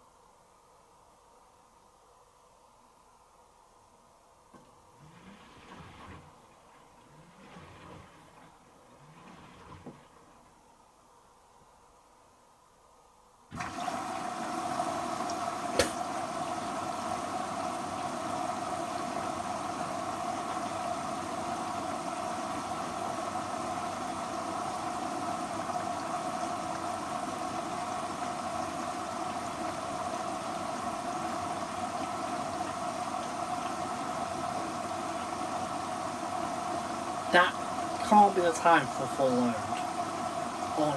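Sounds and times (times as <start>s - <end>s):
water rushing into machine: 4.8s - 10.6s, 13.5s - 40.9s
sharp click: 15.8s - 16.0s.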